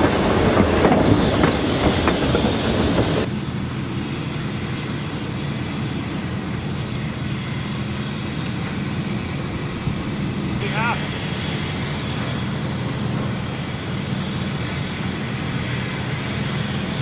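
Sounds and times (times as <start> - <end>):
train wheels clicking over rail joints: 0.0 - 3.3
low locomotive engine: 0.0 - 17.0.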